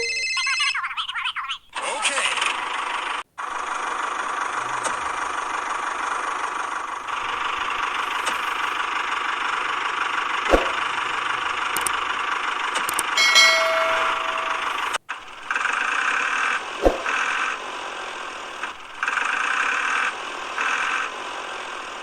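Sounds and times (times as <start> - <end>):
small motor running: 2.4 - 13.2, 15.5 - 21.8
sharp click: 12.8 - 15.0
brief metallic ring: 13.2 - 15.0.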